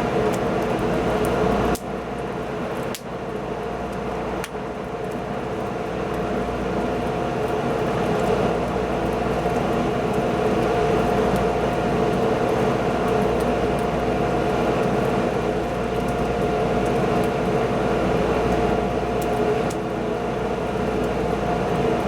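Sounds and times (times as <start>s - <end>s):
wood fire burning: 0.0s - 22.0s.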